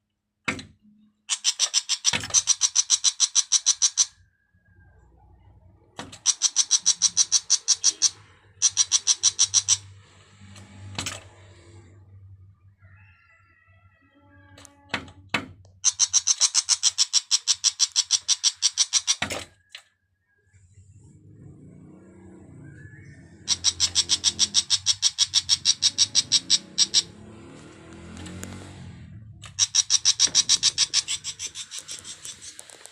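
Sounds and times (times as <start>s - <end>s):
bird calling in rapid notes: 1.3s - 5.3s, 6.2s - 9.9s, 15.8s - 19.2s, 22.7s - 27.4s, 29.4s - 32.9s
bird giving harsh notes: 23.4s - 27.3s, 29.4s - 32.9s.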